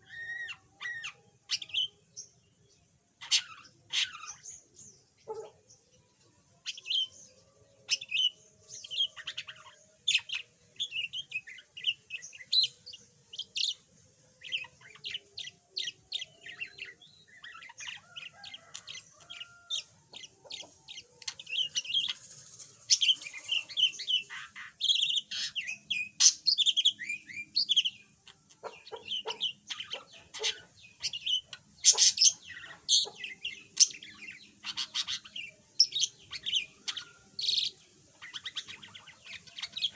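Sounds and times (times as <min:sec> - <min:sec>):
budgerigar chattering: 0:28.6 - 0:31.1, 0:31.8 - 0:33.2.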